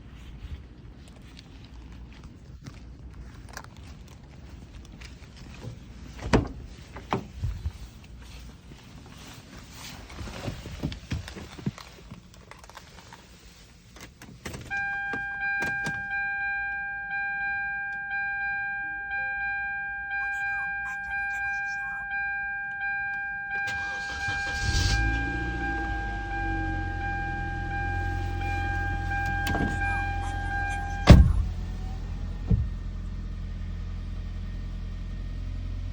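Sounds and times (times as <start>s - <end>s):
car warning chime: 14.7s - 32.4s.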